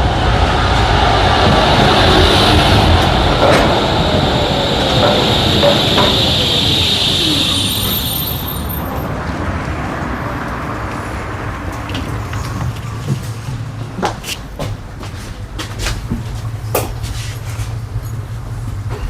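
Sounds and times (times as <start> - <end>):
falling whine: 0.0 - 8.9
tram wheels rumbling on rails: 0.0 - 19.0
thin high squeal: 5.8 - 8.9.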